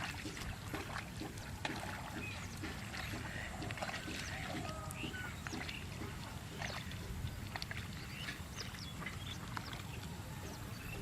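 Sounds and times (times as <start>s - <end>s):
steady low rumble: 0.0s - 11.0s
small birds chirping: 1.2s - 11.0s.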